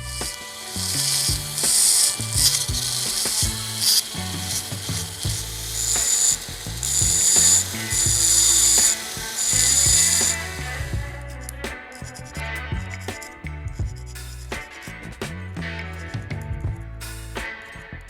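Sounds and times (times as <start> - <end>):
power tool whining on metal: 0.0 - 11.4
background music with bass line: 0.0 - 18.0.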